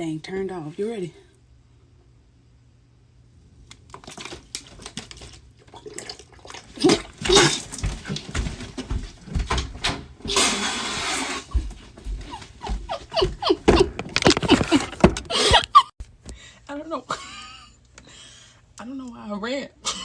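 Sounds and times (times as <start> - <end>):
knocks and scuffling: 6.6 - 10.3, 11.4 - 15.8.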